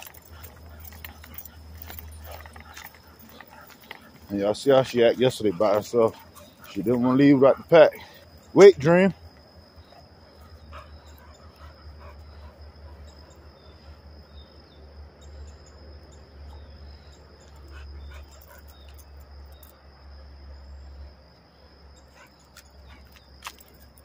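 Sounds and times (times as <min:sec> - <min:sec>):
dogs making small sounds: 0:00.0 - 0:09.1, 0:09.7 - 0:14.0, 0:16.5 - 0:19.1
high insect trill: 0:00.0 - 0:24.0.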